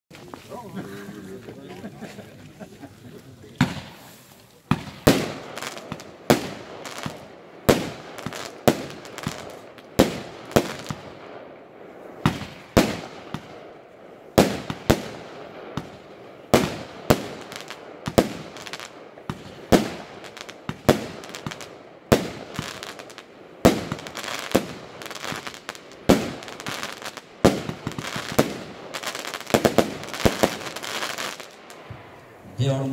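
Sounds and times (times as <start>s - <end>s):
firework hiss: 3.6s - 11.2s, 14.4s - 32.4s
firework cake firing bangs: 3.6s - 11.5s, 12.2s - 13.7s, 14.4s - 31.6s.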